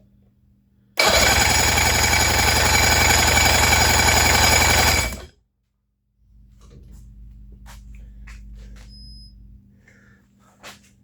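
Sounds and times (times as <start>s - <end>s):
outboard motor starter cranking: 1.0s - 5.3s.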